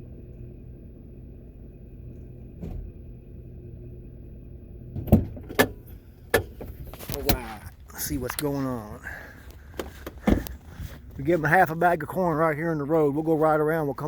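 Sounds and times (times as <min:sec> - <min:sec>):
vehicle idling: 0:00.0 - 0:14.0
knocks and clunks: 0:04.9 - 0:07.8, 0:09.4 - 0:11.2.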